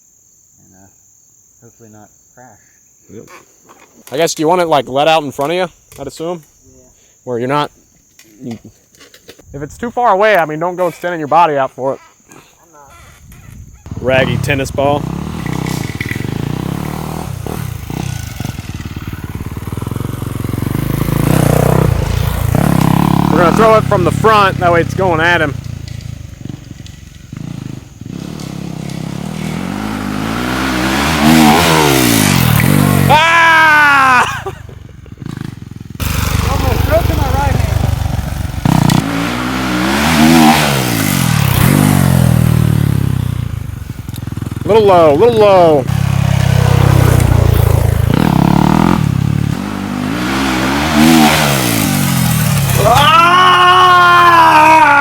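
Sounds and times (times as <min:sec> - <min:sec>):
dirt bike engine passing: 0:13.1 - 0:55.0
dirt bike engine revving: 0:13.4 - 0:55.0.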